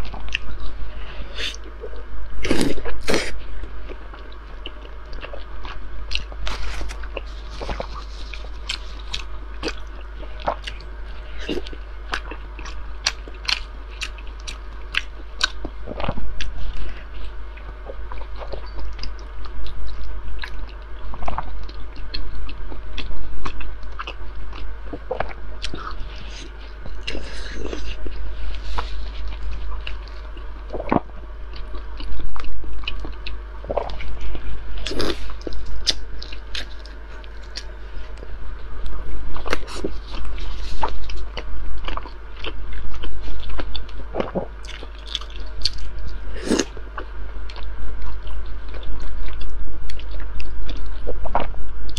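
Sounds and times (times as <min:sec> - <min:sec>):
steady low hum: 0:00.0 - 0:51.9
wet chewing and biting: 0:03.9 - 0:16.6, 0:39.4 - 0:51.6.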